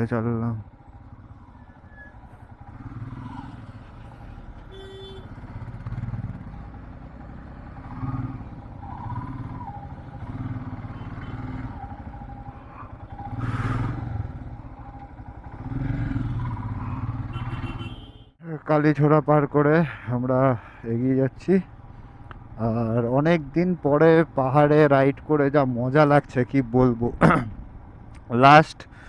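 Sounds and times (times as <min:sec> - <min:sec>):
motorcycle engine running: 0:00.6 - 0:18.1.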